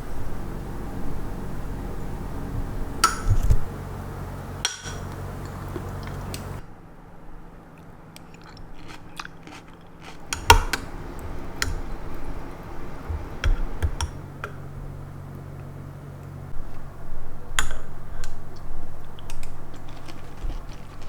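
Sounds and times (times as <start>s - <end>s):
utensils clicking and knocking: 8.8s - 12.2s.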